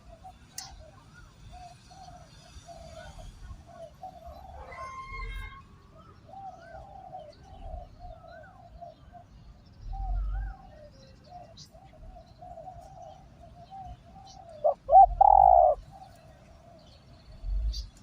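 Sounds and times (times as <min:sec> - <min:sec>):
small birds chirping: 0:05.9 - 0:18.0
doves cooing: 0:06.2 - 0:18.0.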